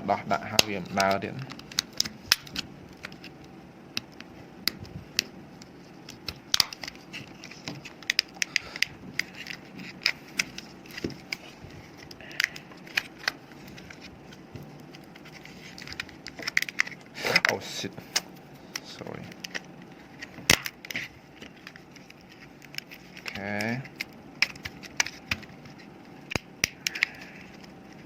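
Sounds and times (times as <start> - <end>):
plastic casing cracking and clicking: 0.6 - 11.2.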